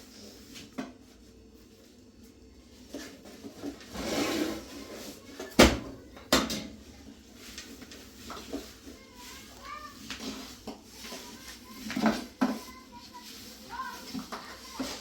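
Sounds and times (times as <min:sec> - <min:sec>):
scraping rustle: 0:02.7 - 0:05.5, 0:06.8 - 0:15.0.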